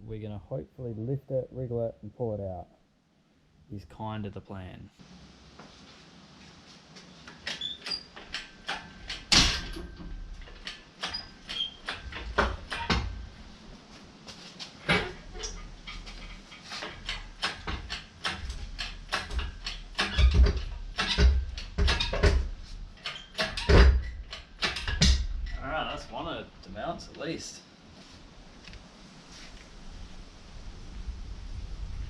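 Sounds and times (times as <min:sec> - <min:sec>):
short squeaks: 0:07.3 - 0:08.8, 0:10.4 - 0:12.9, 0:22.9 - 0:25.6
metal clanks and knocks: 0:07.3 - 0:13.4, 0:14.8 - 0:25.6
heavy thumps: 0:14.8 - 0:25.6.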